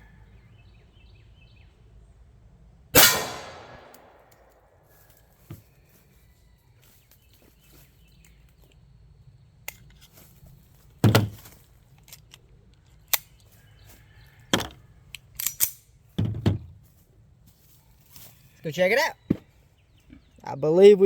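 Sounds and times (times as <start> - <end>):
pistol shots hitting steel: 3.0 - 4.6.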